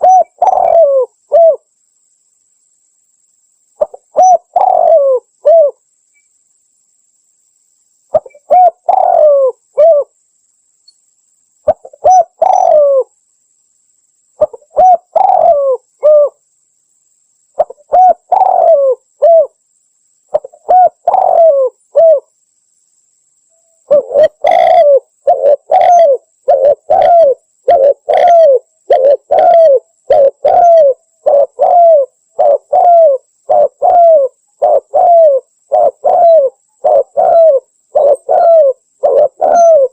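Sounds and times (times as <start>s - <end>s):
dove cooing: 0.0s - 1.7s, 3.8s - 5.8s, 8.1s - 10.2s, 11.7s - 13.1s, 14.4s - 16.4s, 17.6s - 19.6s, 20.3s - 22.3s, 23.8s - 39.9s.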